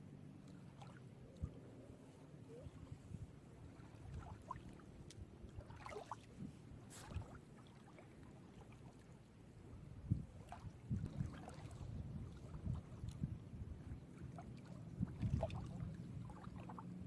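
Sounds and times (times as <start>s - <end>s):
small waves lapping at shore: 0.0s - 17.0s
wind rumble on microphone: 1.2s - 7.4s, 9.6s - 17.0s.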